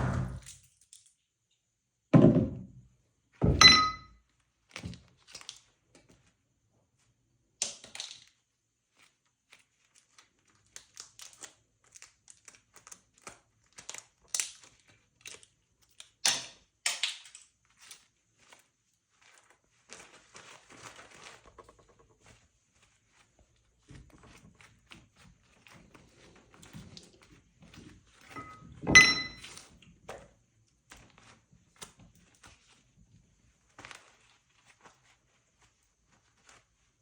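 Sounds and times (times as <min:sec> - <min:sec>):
plastic pieces cracking: 0:07.6 - 0:08.4, 0:09.8 - 0:18.6.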